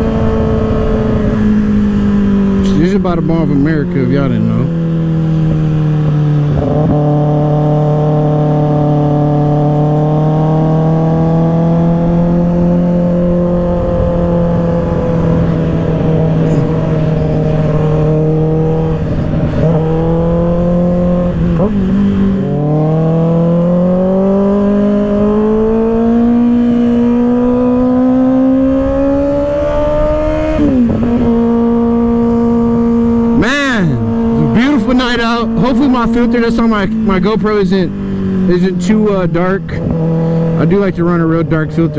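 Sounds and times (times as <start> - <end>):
motorcycle engine at speed: 0.0 - 41.9
wind rush: 11.6 - 40.7.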